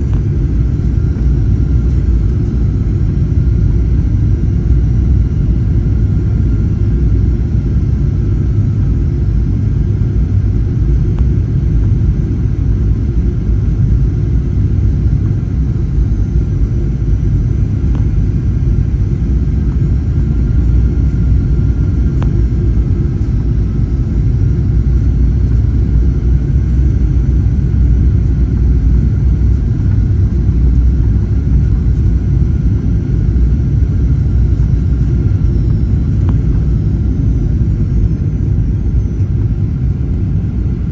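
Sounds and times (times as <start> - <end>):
airplane cabin rumble: 0.0 - 40.9.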